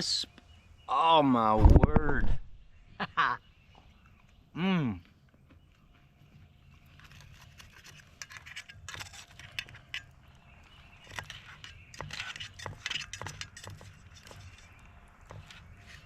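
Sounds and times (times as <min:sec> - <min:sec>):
eating clicks and crunches: 0:03.8 - 0:15.0.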